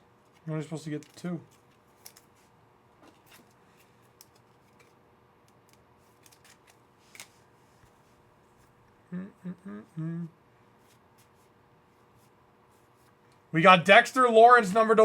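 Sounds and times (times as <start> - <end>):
trading cards rustling: 0.2 - 7.5.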